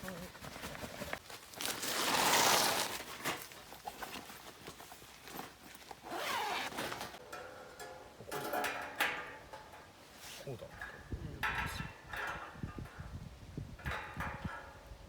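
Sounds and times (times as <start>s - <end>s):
nylon fabric rustling: 0.0s - 7.2s.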